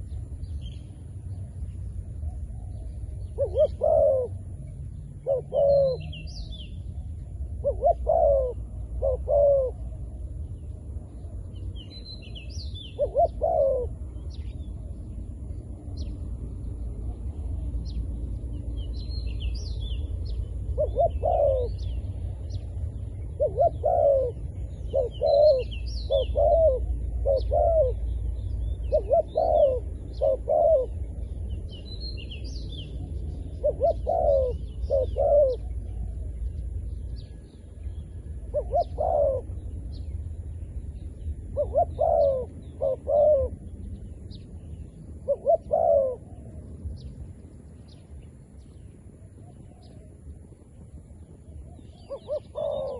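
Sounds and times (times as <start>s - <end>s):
small birds chirping: 0.0s - 52.9s
steady low rumble: 0.0s - 52.9s
dove cooing: 2.2s - 4.6s, 5.2s - 10.2s, 12.8s - 14.5s, 20.6s - 22.6s, 23.2s - 31.2s, 33.0s - 36.4s, 38.4s - 39.8s, 41.3s - 43.7s, 45.1s - 46.6s, 51.7s - 52.9s.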